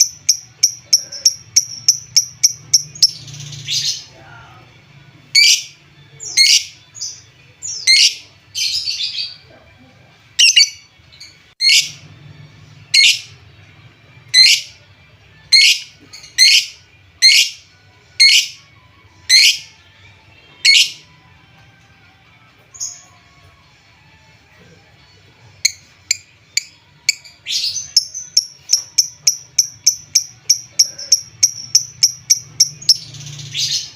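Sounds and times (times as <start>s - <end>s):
lovebird chirping: 0.0s - 3.9s, 5.4s - 6.7s, 10.4s - 12.0s, 12.9s - 13.3s, 14.4s - 14.7s, 15.5s - 17.6s, 18.2s - 18.6s, 19.3s - 19.6s, 20.6s - 21.0s, 25.6s - 33.9s.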